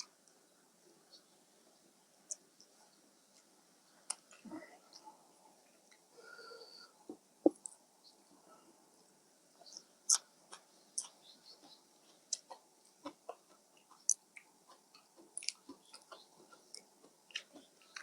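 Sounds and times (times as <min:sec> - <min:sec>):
mouth chewing noodles: 0:09.7 - 0:18.0.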